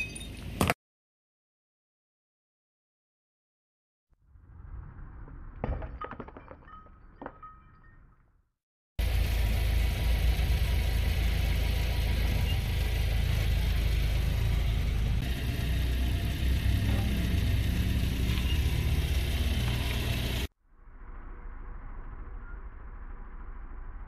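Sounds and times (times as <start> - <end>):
car engine idling: 9.0 - 20.5.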